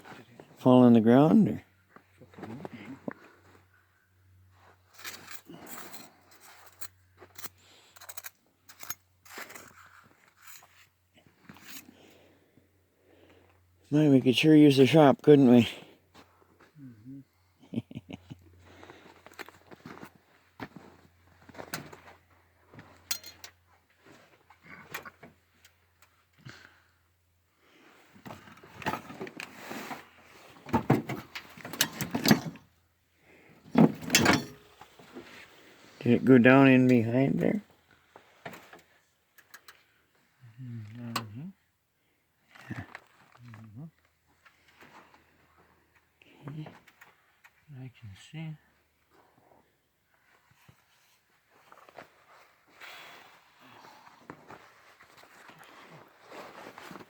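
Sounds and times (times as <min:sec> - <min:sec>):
hands and tools scraping: 0:05.0 - 0:10.9.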